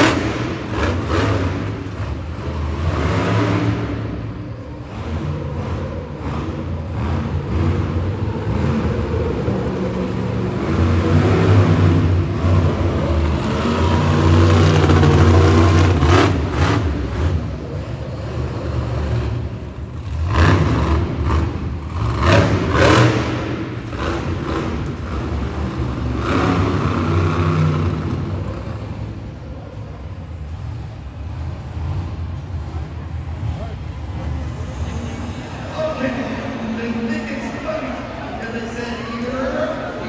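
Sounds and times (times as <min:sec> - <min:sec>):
monster truck engine revving: 0:00.0 - 0:40.0.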